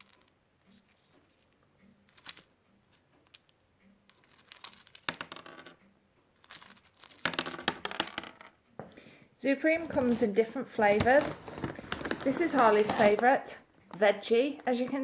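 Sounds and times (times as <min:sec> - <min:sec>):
plastic bag crinkling: 0:09.8 - 0:13.4
pellets shifting in bag: 0:11.0 - 0:13.3.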